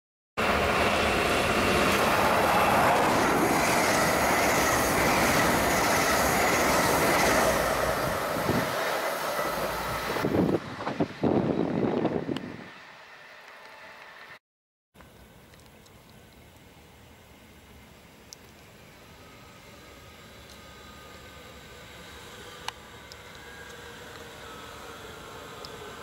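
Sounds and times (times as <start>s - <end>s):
train thumps and rumbles: 0.4s - 9.2s
train wheels rushing on rail: 0.4s - 14.2s, 16.6s - 26.0s.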